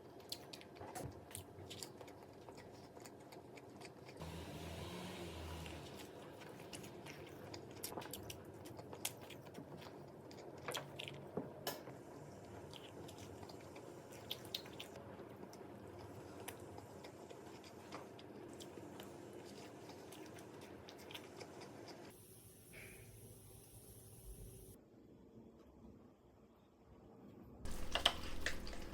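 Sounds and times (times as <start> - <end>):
person chewing rice cake: 0.0 - 4.2, 5.6 - 11.4, 12.4 - 22.1, 27.7 - 28.9.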